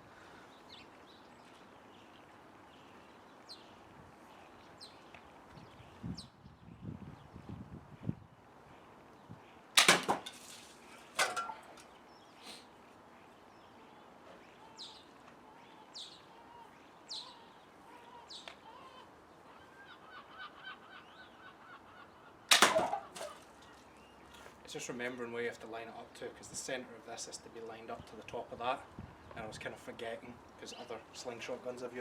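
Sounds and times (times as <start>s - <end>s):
slingshot shots hitting cans: 9.8s - 11.8s, 22.5s - 23.4s.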